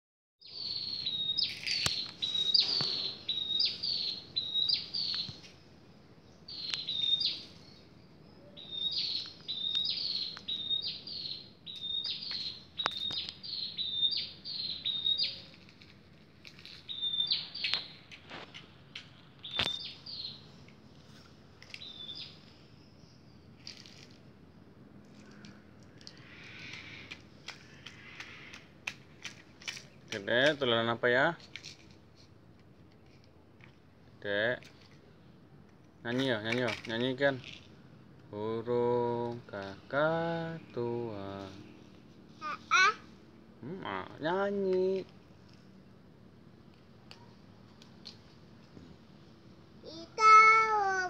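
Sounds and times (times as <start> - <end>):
bird chirping: 0.4 - 15.9, 16.6 - 18.6, 19.4 - 24.1.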